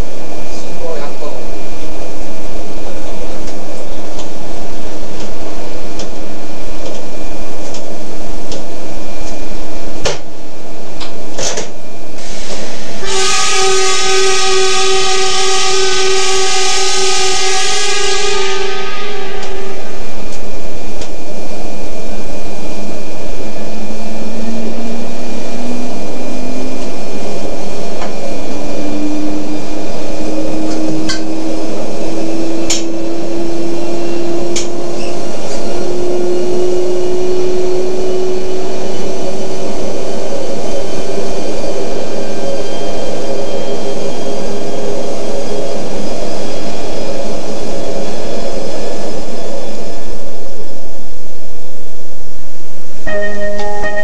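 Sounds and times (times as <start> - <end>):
train running rumble: 0.0 - 51.5
traction motor hum rising: 19.8 - 41.9.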